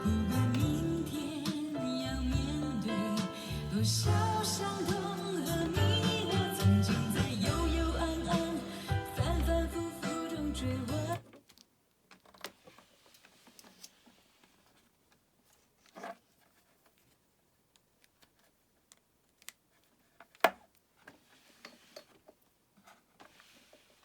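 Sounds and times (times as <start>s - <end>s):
handling clicks and rustling: 11.1s - 24.0s.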